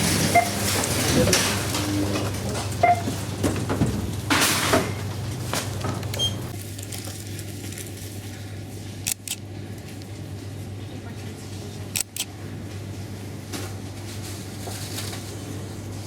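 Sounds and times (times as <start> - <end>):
sharp clicks: 9.1 - 9.4, 12.0 - 12.3.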